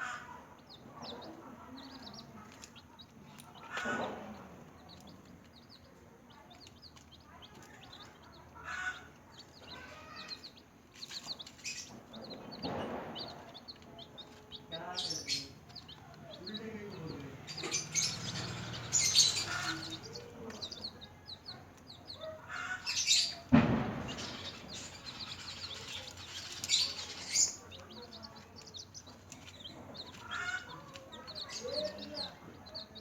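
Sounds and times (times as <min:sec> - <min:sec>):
chicks peeping: 0:00.0 - 0:33.0
sharp thump: 0:12.2 - 0:14.4, 0:23.4 - 0:26.2
rustling: 0:22.9 - 0:32.5.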